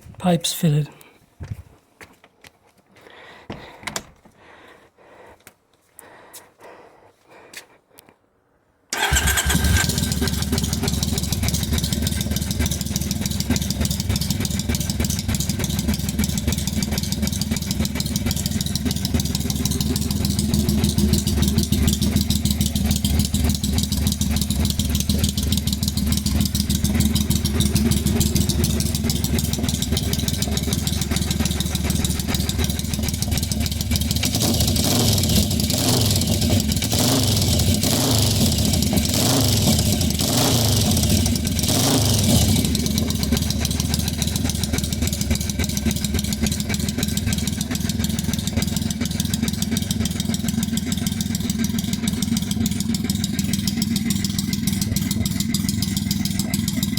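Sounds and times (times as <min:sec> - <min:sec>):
motorcycle engine idling: 0:08.9 - 0:56.9.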